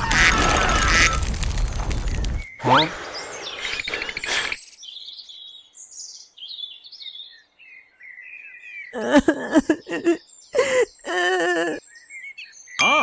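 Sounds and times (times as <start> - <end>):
birds chirping: 0.0 - 6.3
pitched voice-like sound: 2.6 - 4.5.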